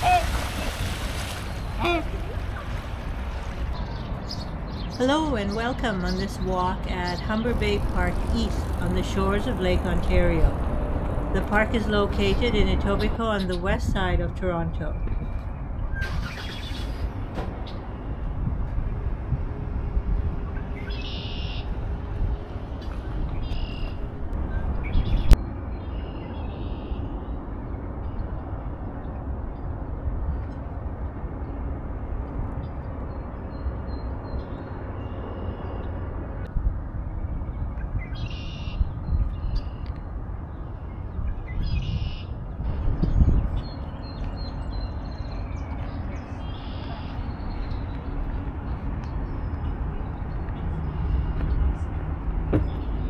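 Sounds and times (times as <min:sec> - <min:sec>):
songbird calling: 0:00.0 - 0:09.4, 0:20.8 - 0:21.7, 0:22.8 - 0:24.1, 0:38.0 - 0:40.0, 0:41.5 - 0:42.4, 0:43.1 - 0:48.2
steady low rumble: 0:00.0 - 0:15.9, 0:38.8 - 0:53.0
songbirds chirping: 0:00.0 - 0:19.9, 0:20.5 - 0:30.6, 0:37.1 - 0:53.0.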